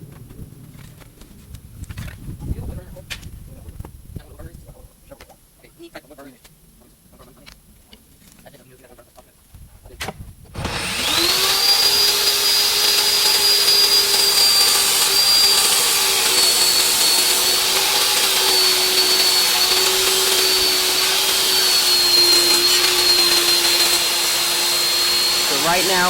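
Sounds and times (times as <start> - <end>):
table saw motor whining: 10.6 - 26.0.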